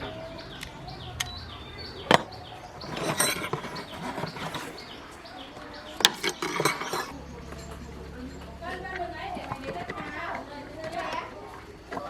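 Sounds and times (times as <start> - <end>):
faint bird chirps: 0.0 - 8.6
scraping and handling noise: 2.0 - 7.9.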